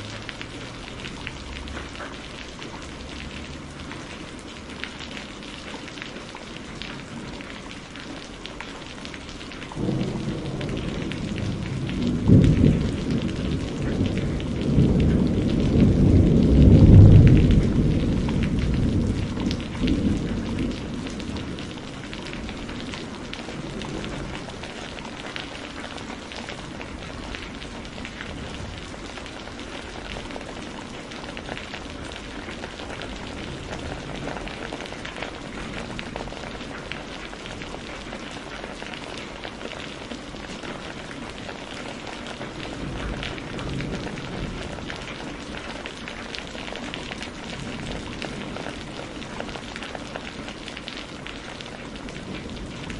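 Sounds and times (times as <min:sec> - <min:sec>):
steady rain pattering: 0:00.0 - 0:52.9
thunder rumbling: 0:09.2 - 0:38.8, 0:40.8 - 0:50.6.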